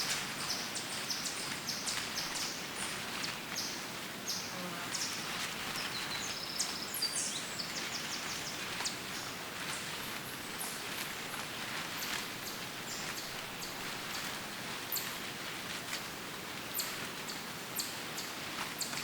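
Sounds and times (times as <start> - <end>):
small birds chirping: 0.0 - 15.2
forest ambience hiss: 0.0 - 19.0.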